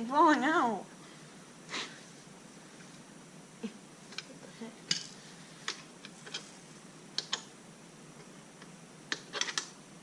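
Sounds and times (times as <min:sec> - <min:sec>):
metal parts and tools clinking: 0:09.1 - 0:09.7.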